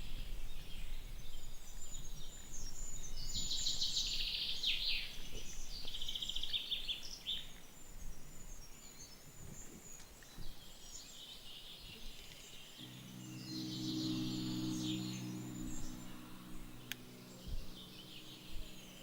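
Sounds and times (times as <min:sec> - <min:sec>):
low steady tone: 0:12.8 - 0:19.0.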